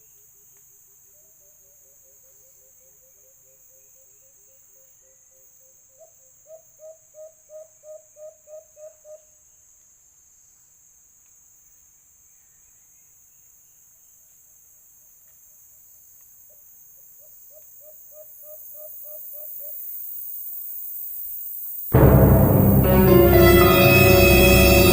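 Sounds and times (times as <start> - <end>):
insects trilling: 14.8 - 22.0.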